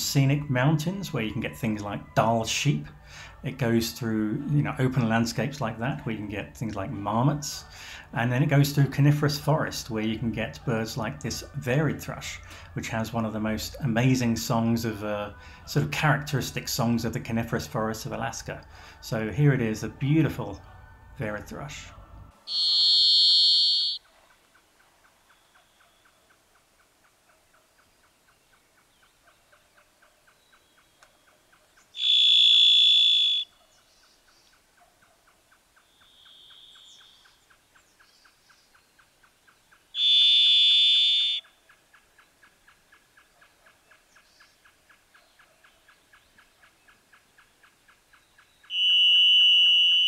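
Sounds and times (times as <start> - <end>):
thrush singing long notes: 22.4 - 24.0.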